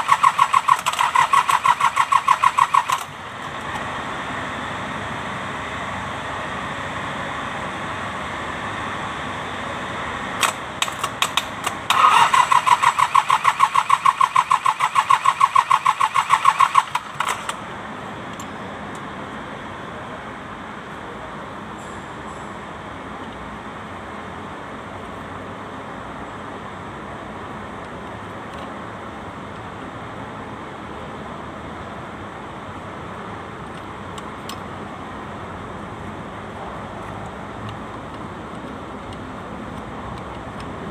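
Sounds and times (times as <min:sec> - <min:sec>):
starter clicks: 0:00.0 - 0:03.1, 0:10.4 - 0:17.6
tractor diesel engine cranking: 0:00.0 - 0:04.0, 0:10.2 - 0:18.6.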